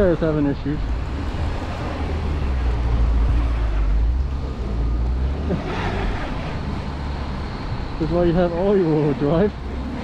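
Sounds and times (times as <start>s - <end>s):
car engine rumbling: 0.0s - 10.0s
wheels spinning in snow: 5.5s - 6.9s.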